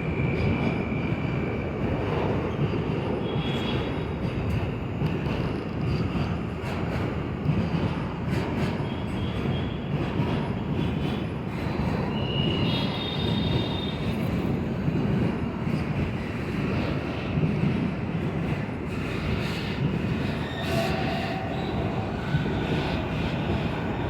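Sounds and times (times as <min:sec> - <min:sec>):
metro train rumbling on track: 0:00.0 - 0:24.0
high wheel squeal: 0:20.2 - 0:22.4.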